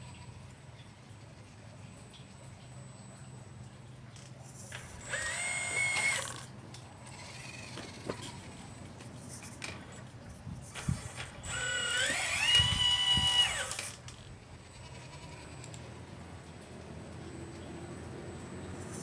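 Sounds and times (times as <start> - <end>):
electric motor whining: 4.6 - 8.8, 9.4 - 14.2.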